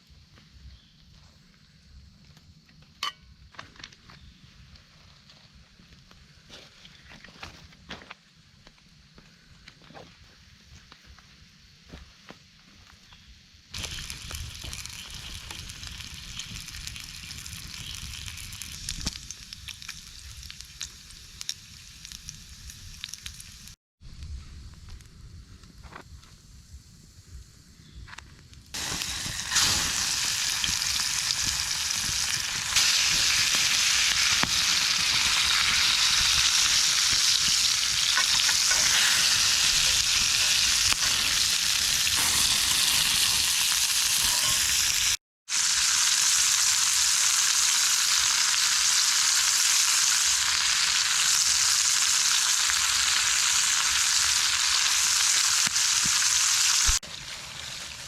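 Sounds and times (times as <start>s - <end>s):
pork chops sizzling in a pan: 13.8s - 23.8s, 28.8s - 58.0s.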